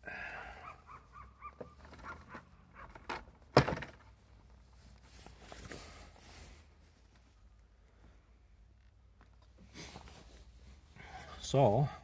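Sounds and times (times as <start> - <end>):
rubber grommet squeaking: 0.9 - 3.1
small handling noises: 1.4 - 11.0.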